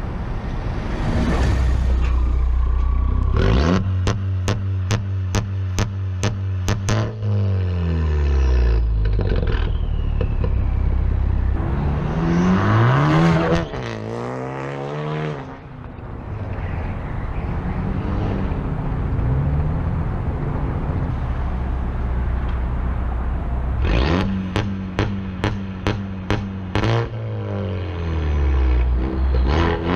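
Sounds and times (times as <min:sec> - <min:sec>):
car engine revving: 0:00.6 - 0:22.3, 0:23.6 - 0:29.9.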